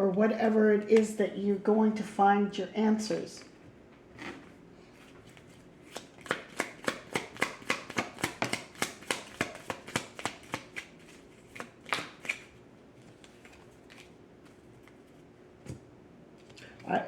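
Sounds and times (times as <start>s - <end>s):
cards being shuffled: 5.2s - 15.8s.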